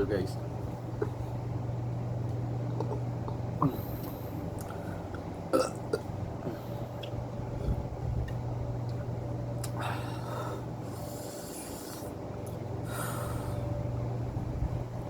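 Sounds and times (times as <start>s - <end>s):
steady low hum: 0.0s - 15.0s
person burping: 5.5s - 6.1s.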